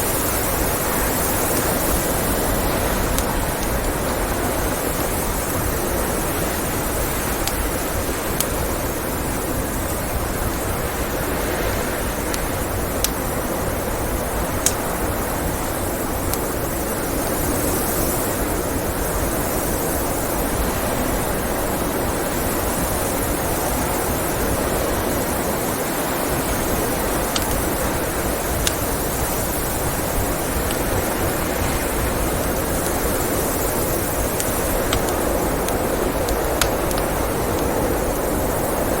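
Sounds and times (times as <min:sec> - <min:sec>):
wood fire popping: 0:00.0 - 0:17.7, 0:25.7 - 0:39.0
rushing blizzard wind: 0:00.0 - 0:39.0.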